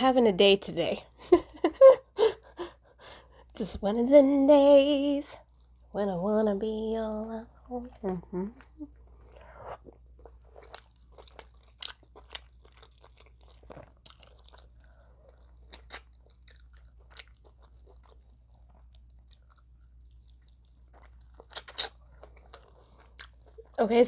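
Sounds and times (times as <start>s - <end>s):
crunchy chewing of fried chicken: 7.5s - 23.8s.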